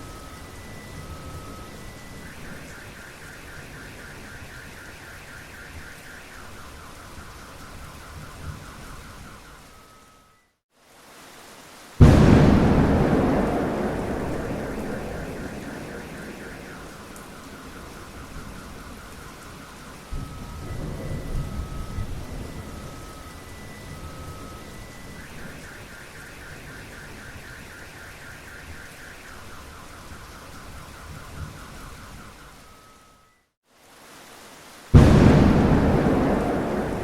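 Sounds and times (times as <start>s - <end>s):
car alarm: 0.0s - 10.5s, 12.1s - 33.5s, 35.0s - 37.0s
steady rain: 0.0s - 37.0s
thunder: 12.0s - 19.1s, 20.1s - 23.2s, 34.9s - 37.0s.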